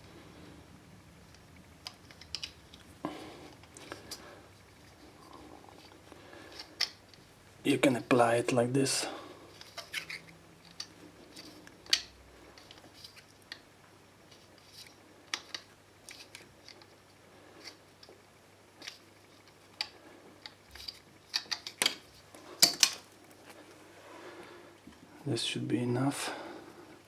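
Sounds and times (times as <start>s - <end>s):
plumbing tape clicks and crinkles: 1.3s - 2.9s, 18.8s - 23.8s.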